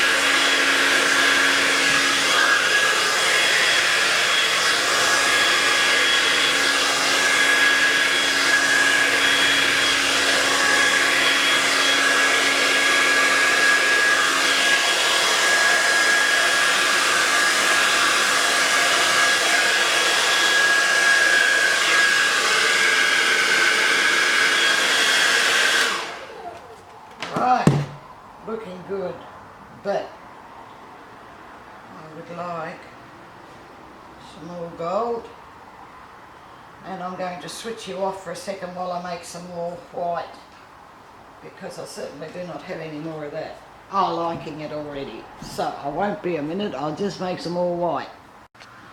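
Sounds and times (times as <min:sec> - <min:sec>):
hair dryer running: 0:00.0 - 0:26.6, 0:27.2 - 0:28.1.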